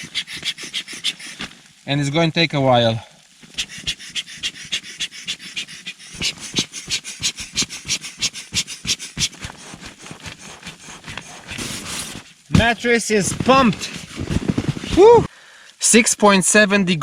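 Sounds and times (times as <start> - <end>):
air pump puffing: 0.0 - 1.6, 3.4 - 15.3.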